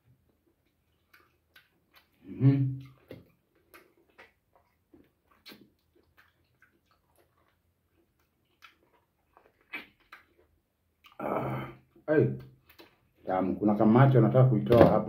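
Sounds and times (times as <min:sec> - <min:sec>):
wet chewing smacks: 0:00.3 - 0:11.2, 0:11.8 - 0:13.3
person speaking: 0:13.2 - 0:15.0.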